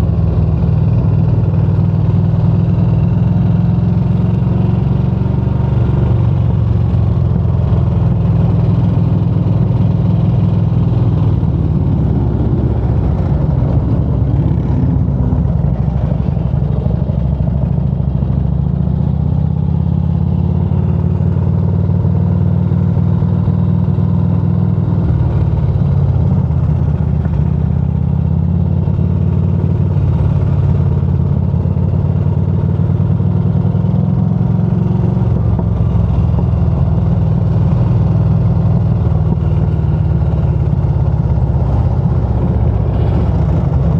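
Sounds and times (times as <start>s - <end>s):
motorcycle engine drone: 0.0s - 43.9s.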